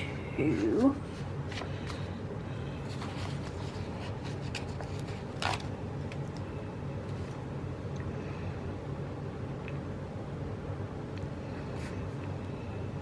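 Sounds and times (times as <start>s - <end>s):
paper rustling: 0.5s - 2.2s, 2.8s - 6.4s.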